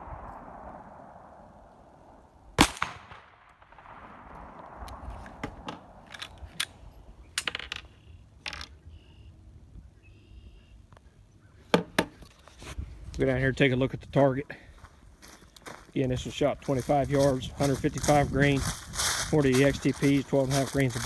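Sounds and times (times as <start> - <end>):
quieter sharp cracks and clicks: 0.0 - 8.7
pistol shot: 2.6 - 6.0.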